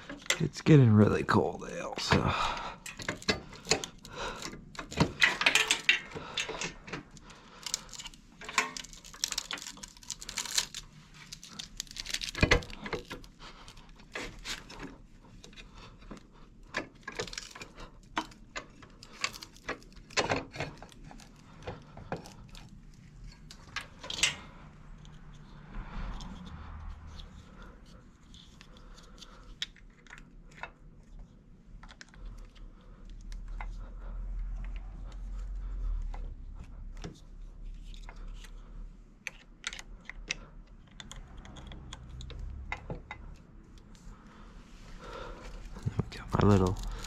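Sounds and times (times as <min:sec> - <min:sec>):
small items clicking and rattling: 0:02.0 - 0:30.8, 0:45.1 - 0:47.0.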